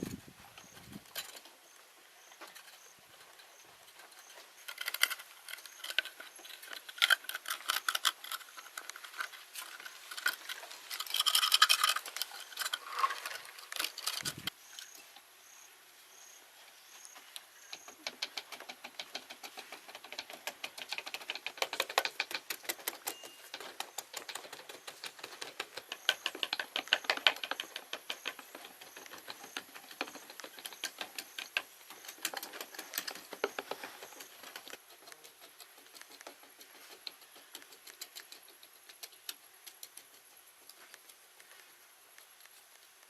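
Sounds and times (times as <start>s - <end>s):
rapid small clicks and taps: 2.4s - 14.5s, 17.6s - 43.0s.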